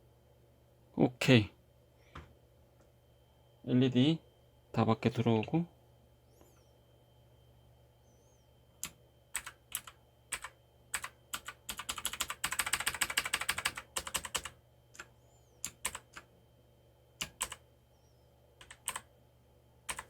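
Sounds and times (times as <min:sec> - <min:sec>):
mechanical keyboard clicks: 0:08.8 - 0:16.2, 0:17.2 - 0:17.6, 0:18.6 - 0:19.0.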